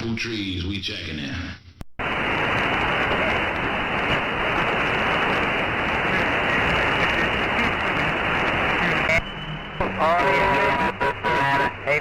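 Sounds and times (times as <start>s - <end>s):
radio static hiss: 2.0s - 9.2s, 9.8s - 12.0s.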